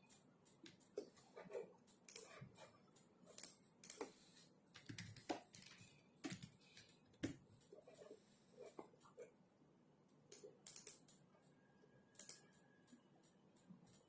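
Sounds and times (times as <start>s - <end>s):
computer keyboard keystrokes: 0.0s - 4.2s, 4.8s - 8.0s, 10.3s - 11.3s, 12.1s - 14.0s.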